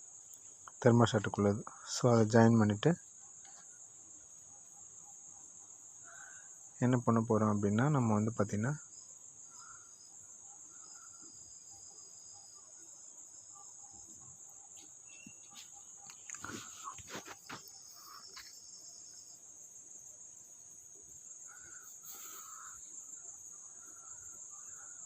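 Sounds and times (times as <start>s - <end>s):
wires and tools being handled: 14.8s - 18.6s.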